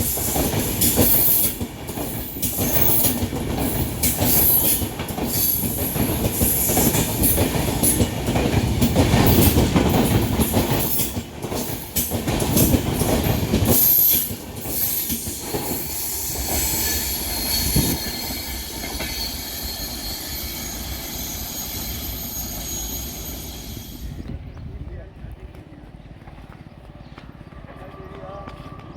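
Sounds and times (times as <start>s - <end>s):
train wheels clacking over rail joints: 0.0s - 20.1s
high wheel squeal: 13.8s - 24.2s.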